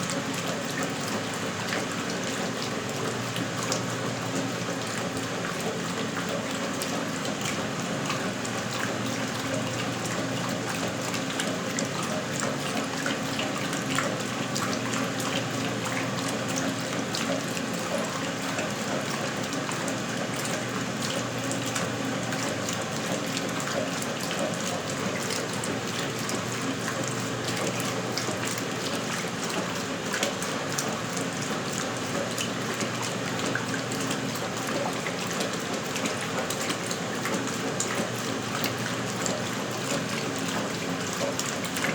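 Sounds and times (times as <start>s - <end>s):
washing machine running: 0.0s - 41.9s.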